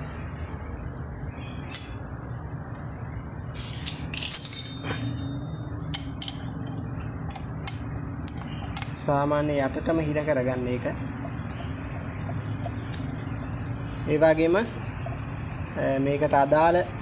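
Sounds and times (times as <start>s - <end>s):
steady low hum: 0.0s - 17.0s
metal tools clinking: 1.8s - 2.1s, 3.8s - 9.0s
metallic clatter: 3.8s - 9.0s.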